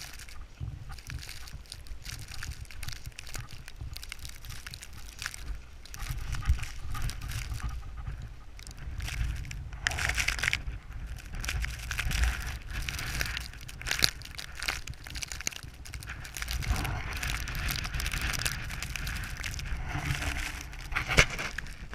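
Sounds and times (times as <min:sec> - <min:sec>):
footsteps crunching in snow: 0:00.0 - 0:21.9
wind buffeting microphone: 0:00.0 - 0:21.9.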